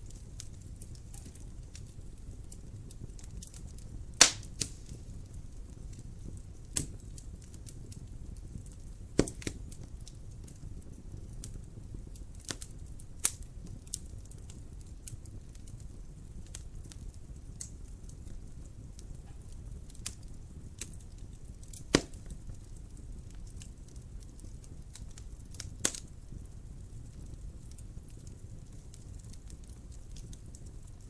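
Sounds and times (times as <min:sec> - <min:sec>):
fire crackles and pops: 0:00.0 - 0:31.0
low noise of flames: 0:00.0 - 0:31.0.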